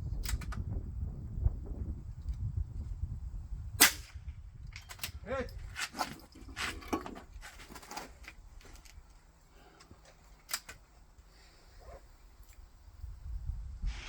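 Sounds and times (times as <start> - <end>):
rifle bolt metallic clicks: 10.4 - 10.8.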